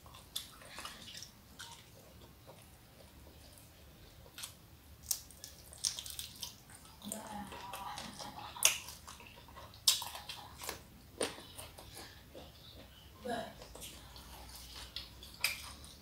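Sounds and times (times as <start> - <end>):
wet chewing: 0.0 - 13.0, 13.6 - 16.0
mouth smacks and crunches: 4.2 - 6.9, 7.7 - 12.5, 13.8 - 16.0.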